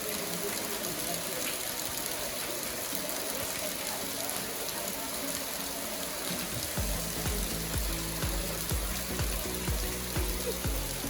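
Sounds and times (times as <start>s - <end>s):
waterfall rushing: 0.0s - 11.0s
music with deep bass beat: 6.6s - 11.0s.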